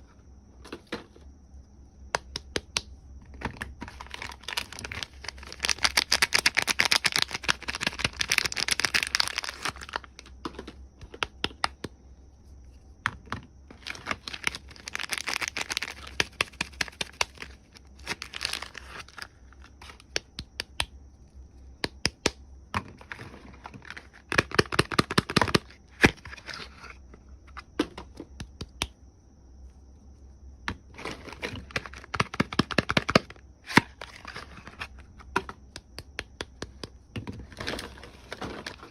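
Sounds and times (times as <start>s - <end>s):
packaging crinkling and tearing: 3.8s - 10.2s, 13.7s - 19.7s.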